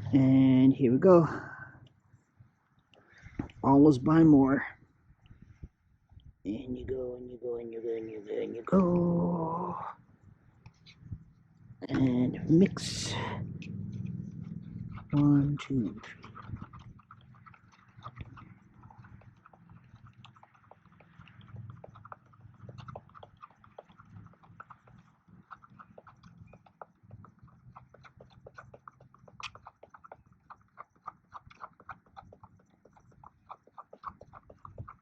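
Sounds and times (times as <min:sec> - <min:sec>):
faint low hum: 0:00.0 - 0:35.0
stirrer scraping against a cup: 0:14.8 - 0:23.0.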